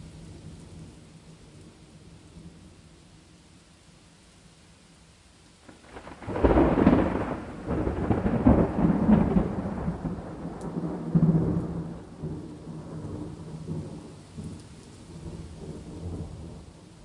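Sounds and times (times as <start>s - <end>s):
rain hissing: 0.0s - 17.0s
thunder rumbling: 5.7s - 16.8s.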